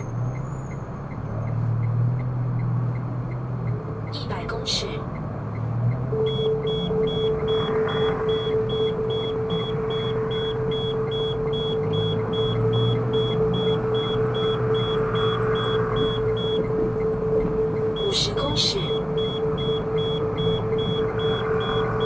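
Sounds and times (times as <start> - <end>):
cabin road rumble: 0.0 - 22.0
steady low tone: 6.0 - 22.0
short high warning beeps: 6.2 - 16.8, 17.8 - 22.0.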